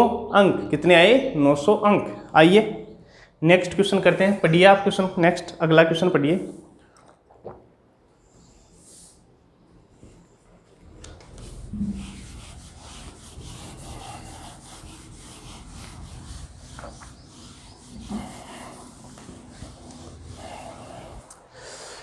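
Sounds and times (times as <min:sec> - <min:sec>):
scraping on a writing board: 0:11.4 - 0:21.3.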